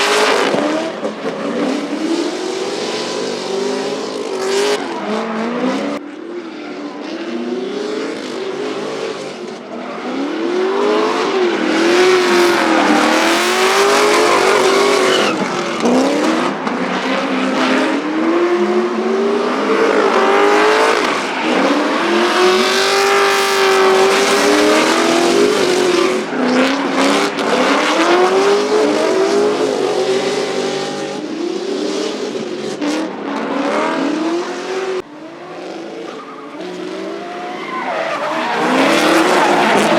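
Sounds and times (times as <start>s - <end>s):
car engines revving hard: 0.0s - 39.9s
tyre squeal: 11.2s - 16.6s, 36.1s - 39.9s.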